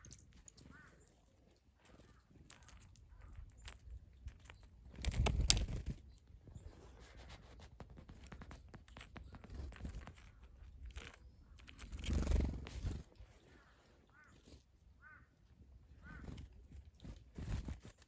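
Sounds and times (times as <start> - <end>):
birds pecking clicks: 0.0 - 6.2, 7.7 - 13.1
short arched bird calls: 13.4 - 15.3.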